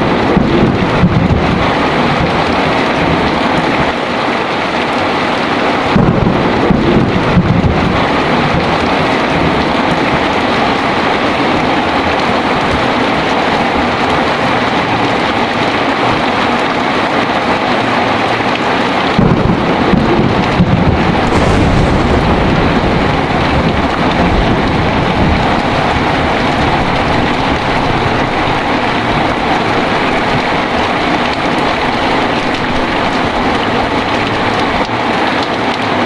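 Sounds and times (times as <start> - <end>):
heavy rain: 0.0 - 36.0
thunder rumbling: 19.1 - 35.2.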